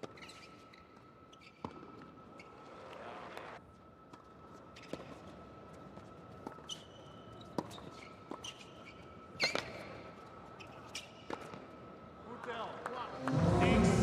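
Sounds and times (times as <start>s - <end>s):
sneaker squeaks: 0.0s - 2.8s, 4.7s - 5.1s, 6.4s - 11.6s.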